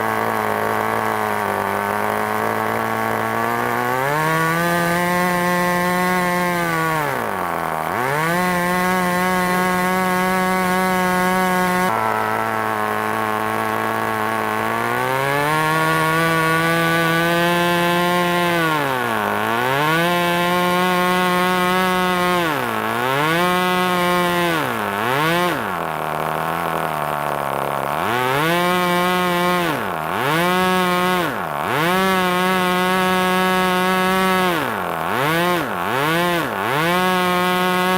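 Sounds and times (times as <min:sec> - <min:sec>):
model glow engine running: 0:00.0 - 0:03.8, 0:09.6 - 0:15.4.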